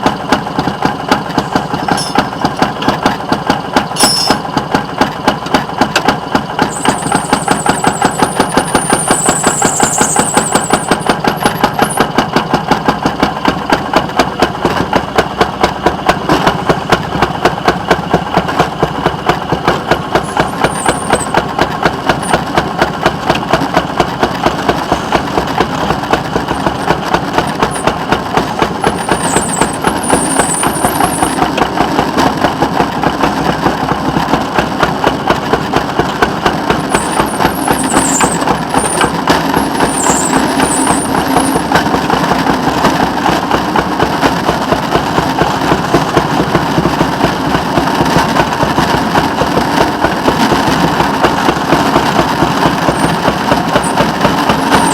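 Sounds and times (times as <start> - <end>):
rail engine pulsing: 0.0 - 54.9
short high squeaks: 1.4 - 2.4, 3.9 - 4.5, 6.7 - 12.1, 20.2 - 21.4, 28.8 - 31.5, 36.8 - 41.8, 52.8 - 54.9.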